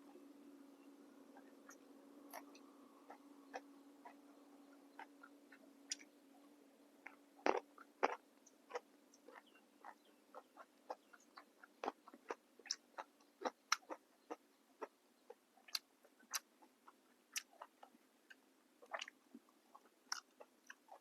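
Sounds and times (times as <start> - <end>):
person chewing crunchy food: 7.1 - 21.0.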